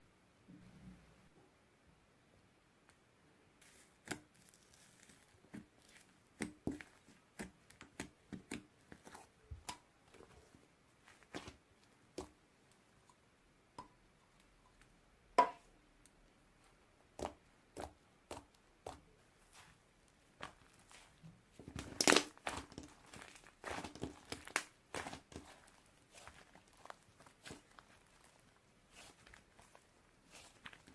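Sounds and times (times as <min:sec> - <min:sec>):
sticky slime clicks and pops: 0:22.0 - 0:22.3.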